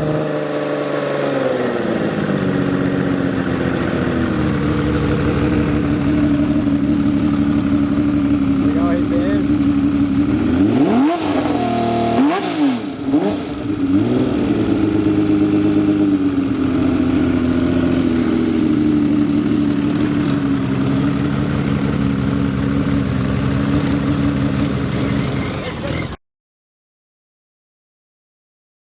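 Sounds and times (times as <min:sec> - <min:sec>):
motorcycle engine revving: 0:00.0 - 0:26.2.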